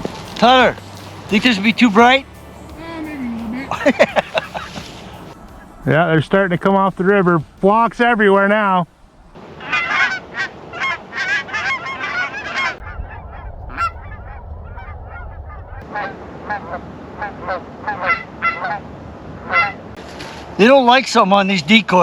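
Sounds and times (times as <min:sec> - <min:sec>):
low rumble: 0:00.0 - 0:09.4, 0:12.8 - 0:16.8
geese honking: 0:08.9 - 0:15.6.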